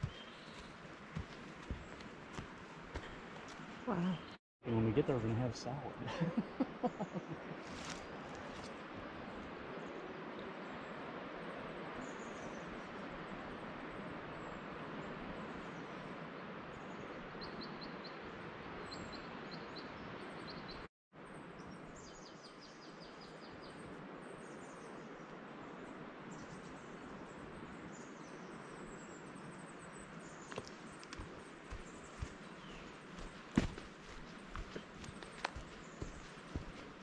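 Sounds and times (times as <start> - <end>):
small birds chirping: 0.0 - 4.4, 26.3 - 37.0.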